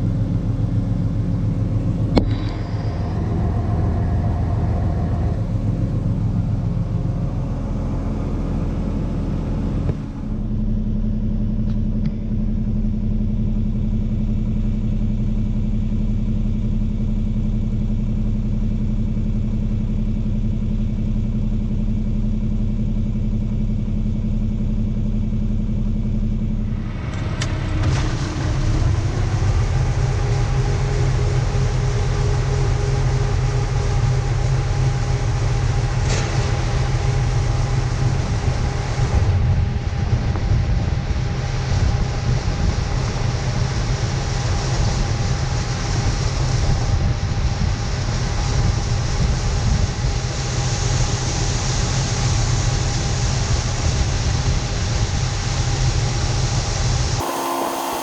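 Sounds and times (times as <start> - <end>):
farm machinery engine running: 0.0 - 15.6, 57.2 - 58.0
noisier machine with high hiss: 57.2 - 58.0.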